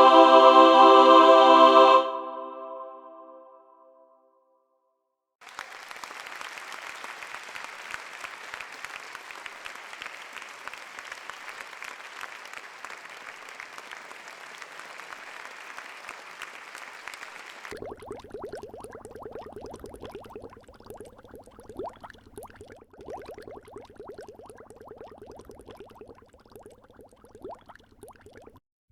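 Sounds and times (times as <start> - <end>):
choir singing a chord: 0.0 - 4.2
crowd clapping: 5.4 - 17.8.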